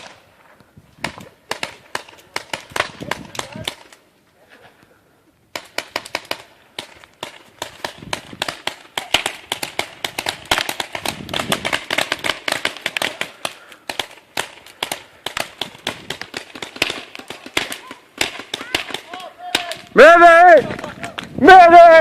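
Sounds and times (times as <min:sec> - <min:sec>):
paintball markers firing: 0:01.0 - 0:04.0, 0:05.5 - 0:20.0.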